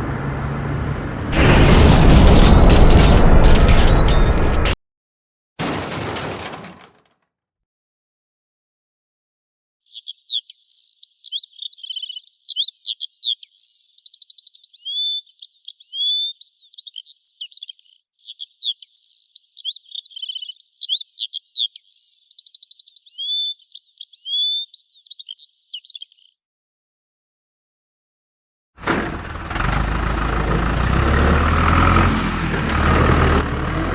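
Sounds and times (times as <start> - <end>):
birdsong chirps and trills: 9.8 - 26.4.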